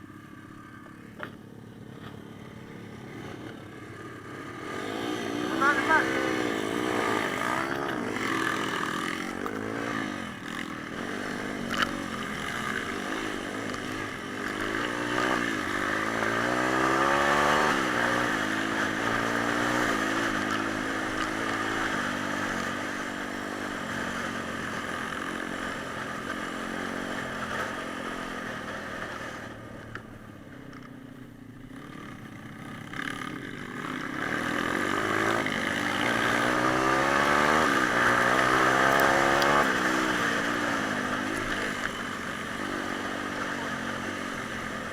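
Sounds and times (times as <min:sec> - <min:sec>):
pit bike engine revving: 0:02.0 - 0:29.4, 0:31.6 - 0:44.9.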